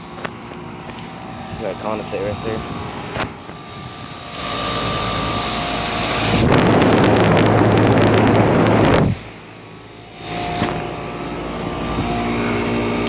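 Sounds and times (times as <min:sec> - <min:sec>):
air conditioner unit humming: 0:00.0 - 0:13.0
wind buffeting microphone: 0:01.4 - 0:09.4.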